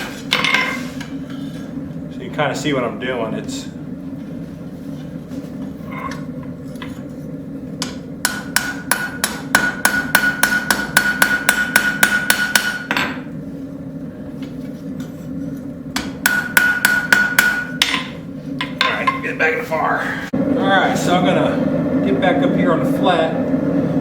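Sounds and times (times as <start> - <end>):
hammer ringing on anvil: 7.8 - 13.2, 16.0 - 19.2.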